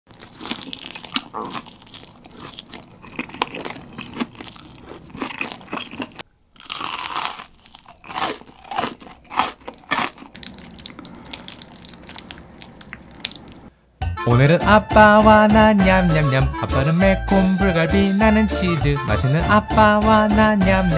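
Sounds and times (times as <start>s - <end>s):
chewing pizza: 0.1s - 13.7s
crunchy bite into fried chicken: 0.1s - 13.7s.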